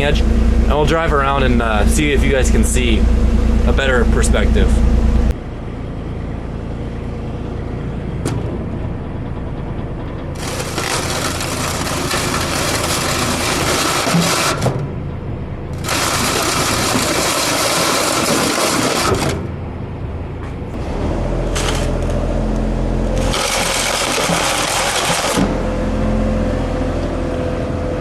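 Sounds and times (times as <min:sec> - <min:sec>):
loader engine running: 0:00.0 - 0:28.0
plow edge scraping ground: 0:07.3 - 0:19.7, 0:20.4 - 0:26.5.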